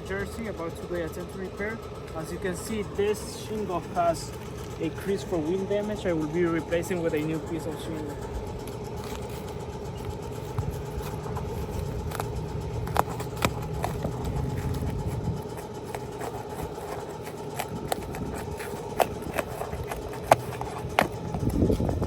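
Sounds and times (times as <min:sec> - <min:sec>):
engine-like hum: 0:00.0 - 0:22.0
hand tools clicking on shingle: 0:08.6 - 0:22.0.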